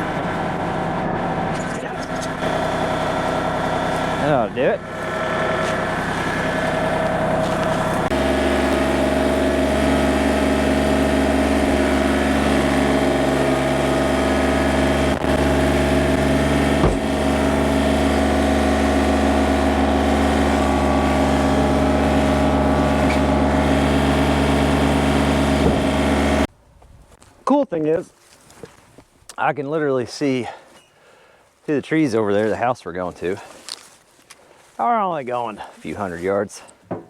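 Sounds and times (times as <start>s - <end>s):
engine running steadily: 0.0s - 26.5s.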